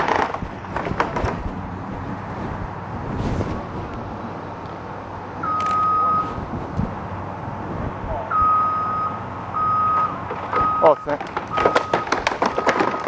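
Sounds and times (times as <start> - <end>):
heavy machine rumble: 0.0 - 13.0
backup alarm beeping: 5.4 - 6.4, 8.3 - 13.0.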